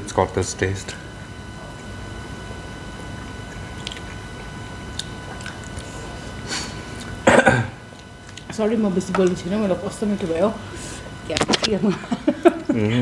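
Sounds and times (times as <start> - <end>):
person chewing food: 3.4 - 7.2, 7.9 - 8.5.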